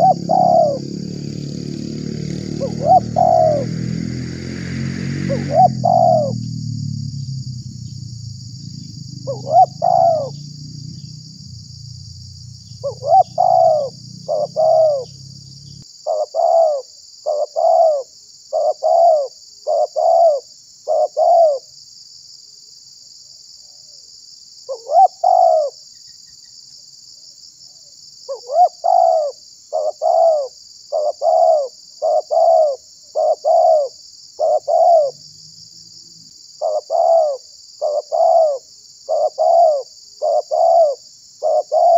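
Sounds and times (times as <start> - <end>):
dove cooing: 0.0 - 4.1, 5.2 - 6.5, 7.9 - 15.3, 16.1 - 21.6, 24.7 - 25.8, 28.3 - 35.2, 36.6 - 41.9.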